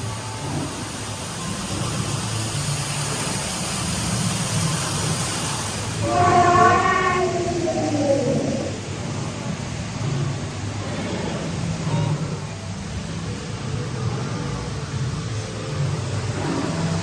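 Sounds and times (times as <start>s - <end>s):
low machinery and water rumble: 0.0s - 17.0s
loud horn-like call: 6.0s - 8.9s.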